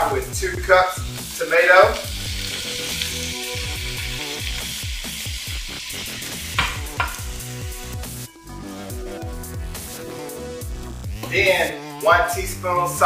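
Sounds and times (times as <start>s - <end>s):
vegetables sizzling in oil: 0.9s - 8.3s
electronic music with deep bass: 2.0s - 12.7s.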